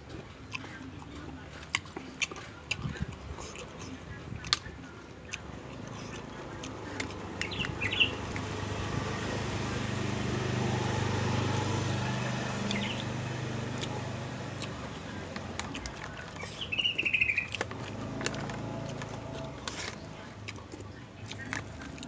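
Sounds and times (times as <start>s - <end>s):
bird chirping: 5.8s - 17.9s.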